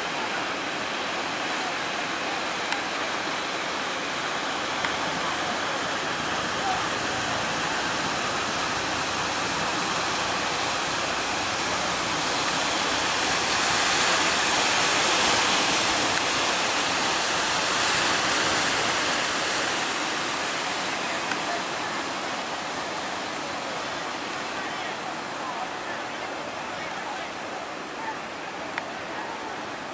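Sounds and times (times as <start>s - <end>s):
heavy surf breaking waves: 0.0s - 29.9s.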